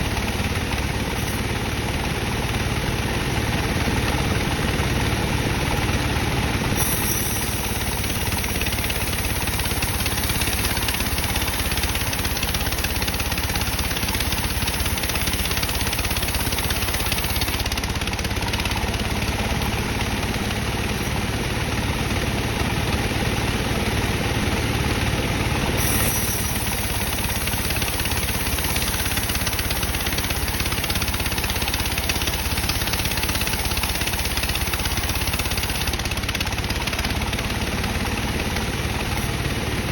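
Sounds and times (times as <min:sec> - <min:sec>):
bandsaw sawing wood: 0:06.8 - 0:20.7, 0:25.7 - 0:39.9.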